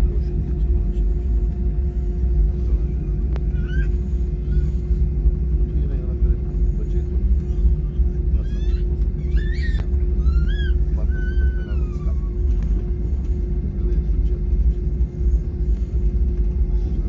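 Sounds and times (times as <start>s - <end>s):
airliner cabin rumble: 0.0s - 17.0s
high-pitched squealing cries: 8.4s - 12.4s.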